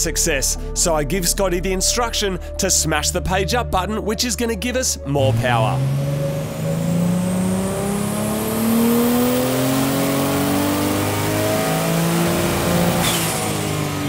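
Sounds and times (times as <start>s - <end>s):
engine revving at full load: 5.2s - 14.0s.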